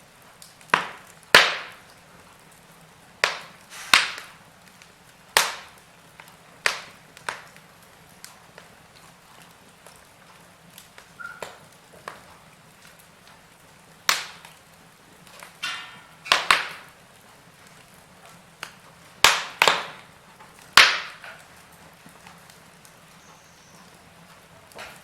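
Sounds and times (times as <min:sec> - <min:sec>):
wood fire crackling: 0:00.0 - 0:25.0
sharp loud pops of fire: 0:00.4 - 0:01.9, 0:03.2 - 0:07.6, 0:14.0 - 0:14.6, 0:15.2 - 0:17.0, 0:18.6 - 0:22.6
brief hiss of fire: 0:03.6 - 0:04.4.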